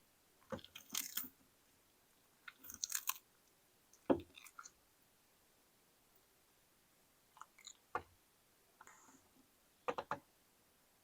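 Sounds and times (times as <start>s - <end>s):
turtle crunching food: 0.5s - 1.4s, 2.4s - 4.8s, 7.3s - 8.0s.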